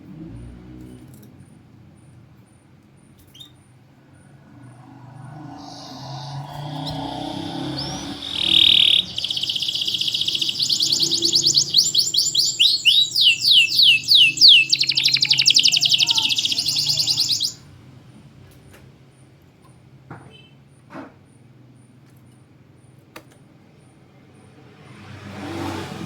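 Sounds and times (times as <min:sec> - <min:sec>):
canary singing trills: 0:04.8 - 0:17.7.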